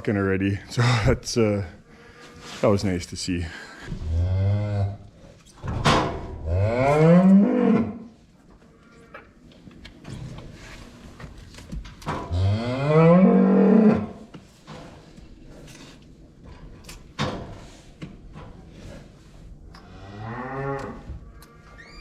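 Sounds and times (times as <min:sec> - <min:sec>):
cow mooing: 0:12.3 - 0:14.2, 0:19.9 - 0:21.0.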